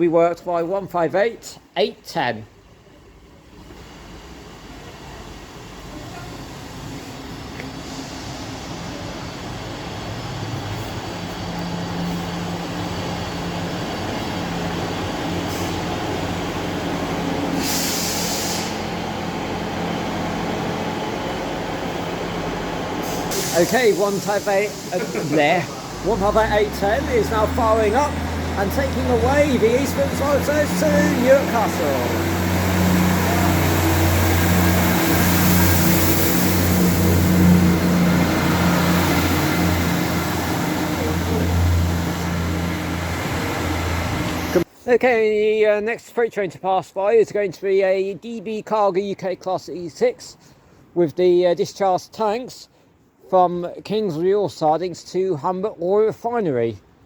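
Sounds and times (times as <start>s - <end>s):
diesel train engines running: 2.5s - 44.8s
air hiss: 6.5s - 12.8s, 15.3s - 16.2s, 17.3s - 19.4s, 23.0s - 42.4s.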